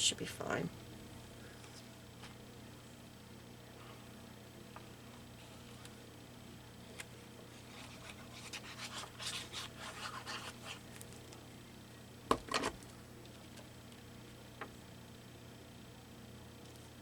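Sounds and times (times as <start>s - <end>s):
paper scratching and rustling: 7.5s - 11.4s.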